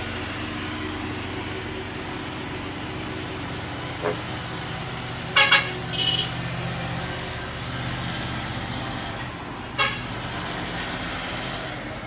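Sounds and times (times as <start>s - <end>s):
road traffic engines: 0.0s - 12.0s
short vehicle horn toot: 5.4s - 6.4s.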